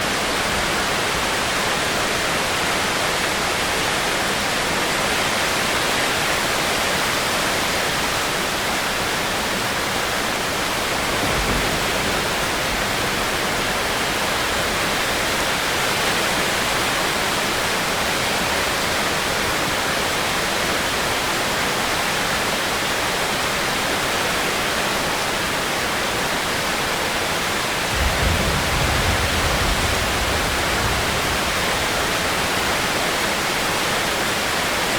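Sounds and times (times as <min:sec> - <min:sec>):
rain hissing: 0:07.9 - 0:18.6, 0:27.7 - 0:34.8
low rumble of thunder: 0:10.6 - 0:15.7, 0:27.9 - 0:33.1.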